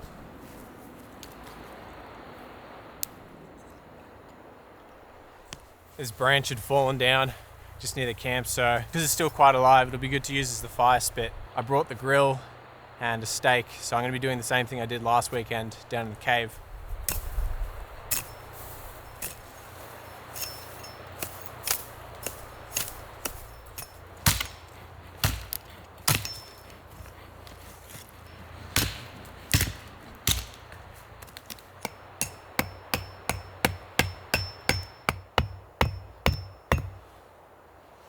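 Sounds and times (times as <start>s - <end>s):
stake being hammered: 21.2s - 26.8s, 28.7s - 37.0s.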